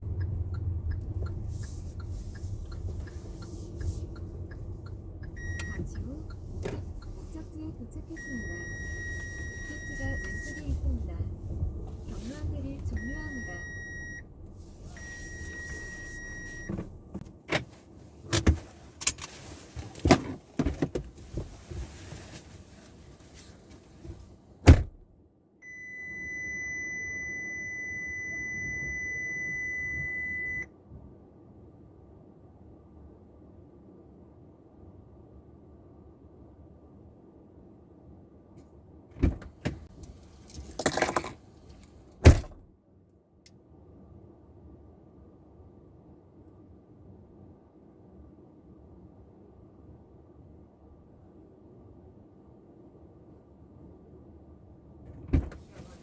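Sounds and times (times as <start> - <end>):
clicks and knocks inside car: 0.0 - 7.5, 11.4 - 22.0, 39.1 - 42.7, 55.0 - 56.0
low hum: 0.0 - 17.2
car warning chime long beep: 5.2 - 6.5, 8.0 - 10.8, 12.9 - 16.9, 25.6 - 30.7.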